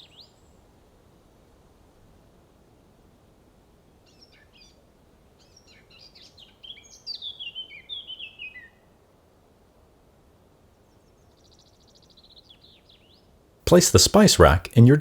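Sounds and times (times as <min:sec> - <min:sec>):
songbird singing: 0:06.0 - 0:08.7
faint steady hiss: 0:08.7 - 0:11.4, 0:13.3 - 0:15.0.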